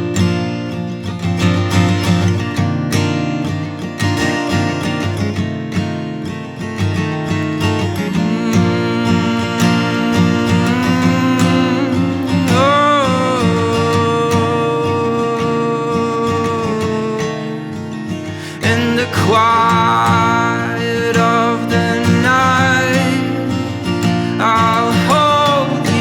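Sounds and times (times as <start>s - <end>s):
acoustic guitar strumming: 0.0s - 26.0s
held melody line: 0.8s - 26.0s.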